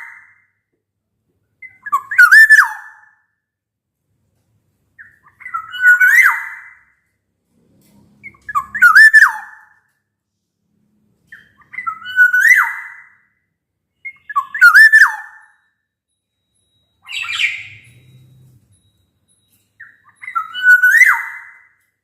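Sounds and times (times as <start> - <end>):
bird fluty whistled song: 1.6 - 3.2, 5.0 - 6.8, 8.2 - 9.9, 11.3 - 13.2, 13.9 - 15.8, 16.4 - 18.6, 19.4 - 21.8.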